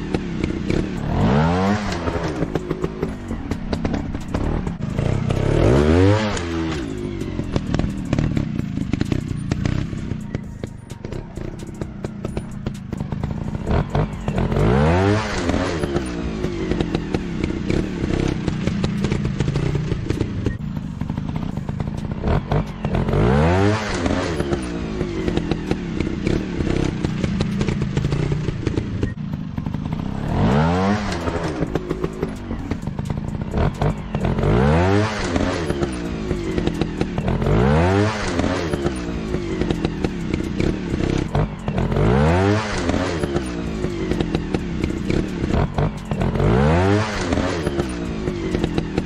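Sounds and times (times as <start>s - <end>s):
dirt bike engine revving: 0.0s - 49.0s.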